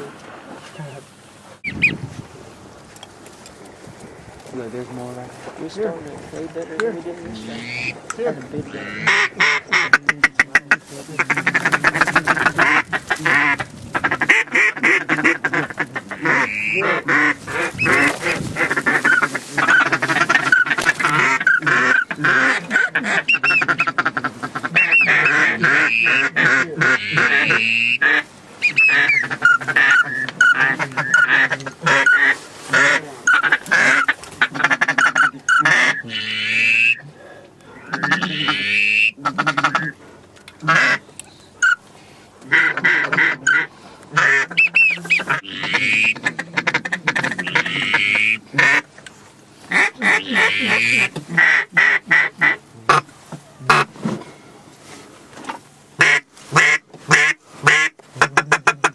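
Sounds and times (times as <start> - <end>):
duck quacking and chattering: 7.4 - 8.0, 8.7 - 37.0, 37.8 - 40.0, 40.6 - 41.8, 42.4 - 49.0, 49.7 - 54.0, 56.0 - 58.9.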